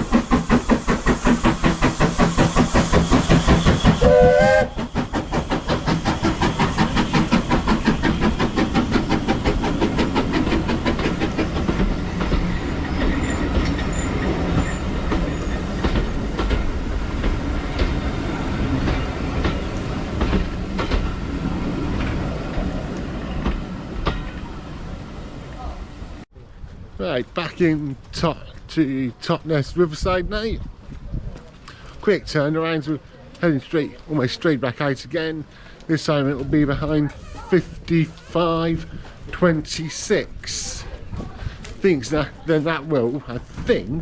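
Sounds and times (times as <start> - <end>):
carriages clattering on rails: 0.0 - 25.7, 35.5 - 44.0
steam locomotive chuffing: 0.0 - 26.3
steam whistle blast: 3.2 - 4.9.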